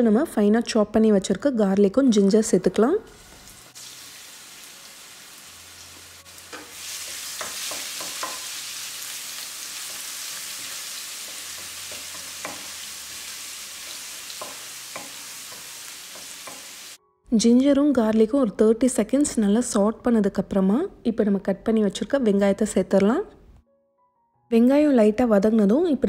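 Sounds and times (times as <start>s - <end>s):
garlic sizzling in hot oil: 3.1s - 17.0s.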